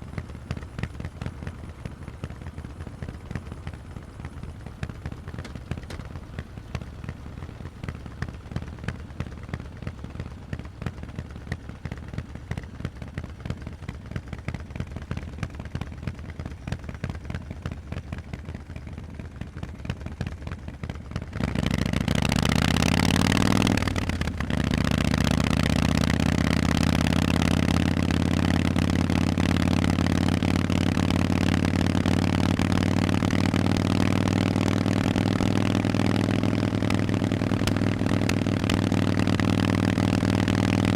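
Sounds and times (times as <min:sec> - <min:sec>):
motorcycle engine revving: 0:21.3 - 0:40.9.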